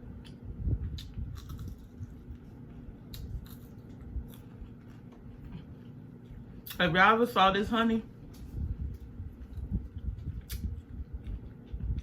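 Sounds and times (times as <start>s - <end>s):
person chewing food: 0.0s - 6.8s, 8.9s - 12.0s.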